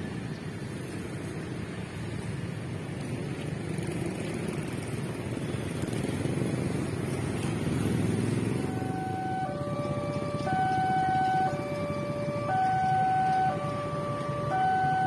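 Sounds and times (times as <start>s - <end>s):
street traffic: 0.0s - 15.0s
distant diesel train rumble: 6.2s - 15.0s.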